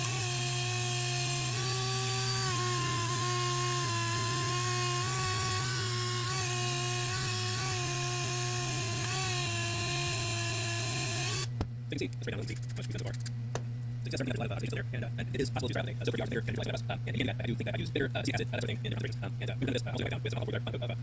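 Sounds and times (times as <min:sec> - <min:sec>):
rotary tool wire wheel whine: 0:00.0 - 0:11.5, 0:12.4 - 0:13.3.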